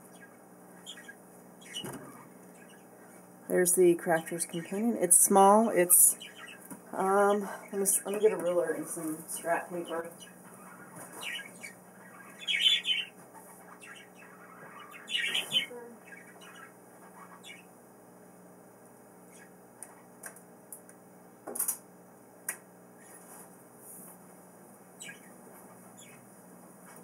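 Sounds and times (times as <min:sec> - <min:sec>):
pet birds squawking: 0:00.0 - 0:03.3, 0:04.1 - 0:17.8, 0:19.3 - 0:20.1, 0:23.0 - 0:23.3, 0:24.9 - 0:26.2.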